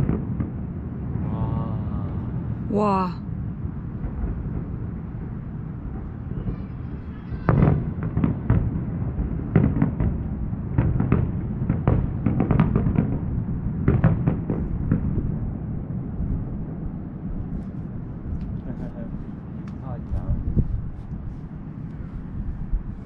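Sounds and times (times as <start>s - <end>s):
distant fireworks bangs: 0.0s - 1.3s, 3.8s - 16.6s
low rumble: 0.0s - 23.0s.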